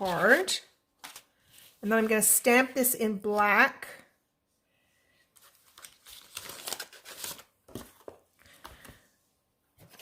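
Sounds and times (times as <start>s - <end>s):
paper rustling: 0.0s - 2.3s, 5.3s - 9.1s, 9.8s - 10.0s.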